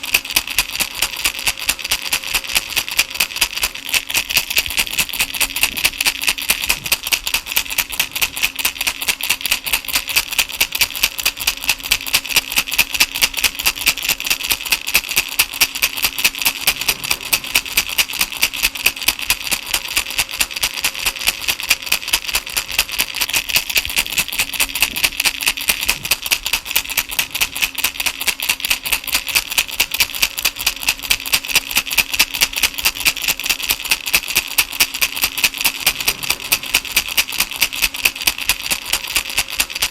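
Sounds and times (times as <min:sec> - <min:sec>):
baby rattle shaken: 0:00.0 - 0:39.9.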